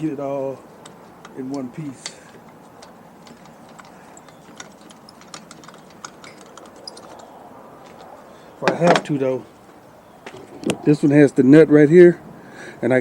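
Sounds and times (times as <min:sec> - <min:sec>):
tools and metal parts clicking: 0:00.8 - 0:08.1.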